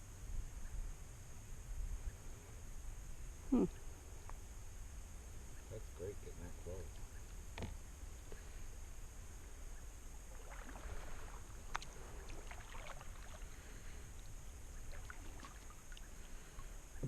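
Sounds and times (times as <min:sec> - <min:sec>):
water lapping around a boat: 0:10.2 - 0:17.0.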